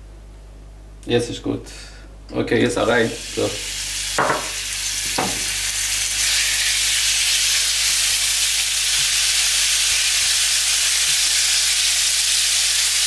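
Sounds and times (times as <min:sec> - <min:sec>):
chicken sizzling in a frying pan: 0:03.0 - 0:13.0.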